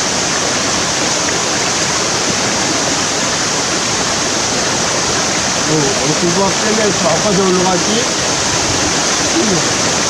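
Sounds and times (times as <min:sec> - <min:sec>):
stream rushing over rocks: 0:00.0 - 0:10.0.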